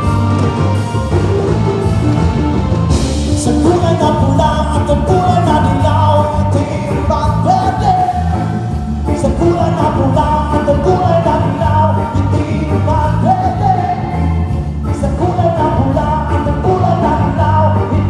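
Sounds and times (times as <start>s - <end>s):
live band playing: 0.0s - 18.0s
person singing: 3.2s - 18.0s.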